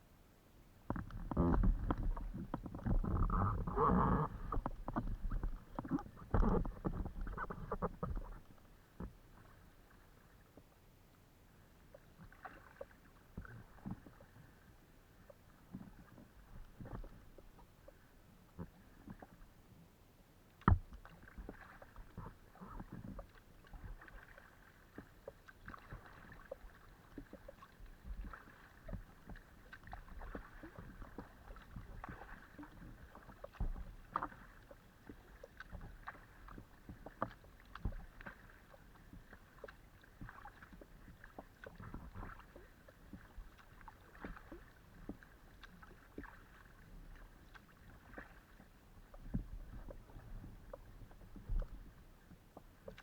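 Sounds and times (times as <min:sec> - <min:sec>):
water lapping along hull: 0:00.0 - 0:53.0
paddle dipping and splashing: 0:00.9 - 0:10.8, 0:11.7 - 0:19.8, 0:20.4 - 0:53.0
small knocks on kayak: 0:20.6 - 0:21.6.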